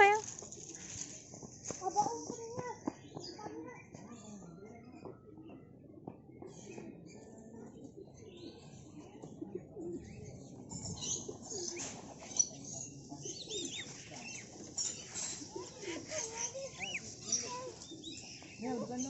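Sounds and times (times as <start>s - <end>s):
birds cooing: 4.2s - 19.0s
birds chirping and whistling: 9.9s - 19.0s.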